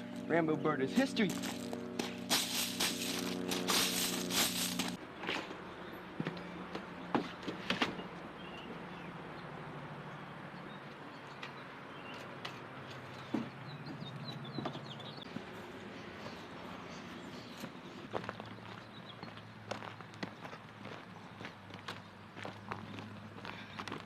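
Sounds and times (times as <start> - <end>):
steady low hum: 0.0 - 5.0
songbird chirps: 5.6 - 23.1.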